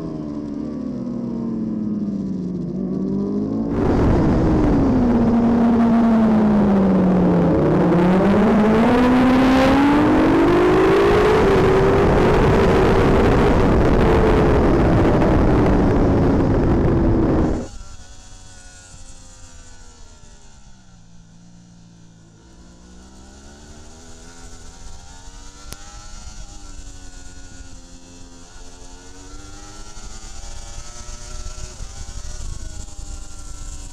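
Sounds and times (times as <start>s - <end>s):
motorcycle engine revving: 0.0s - 33.9s
wind rush: 3.7s - 17.8s.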